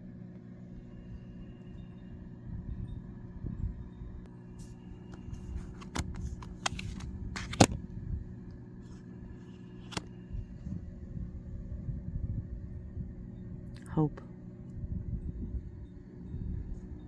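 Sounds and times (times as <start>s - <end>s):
cards rustling and tapping: 5.1s - 7.8s, 9.6s - 10.1s.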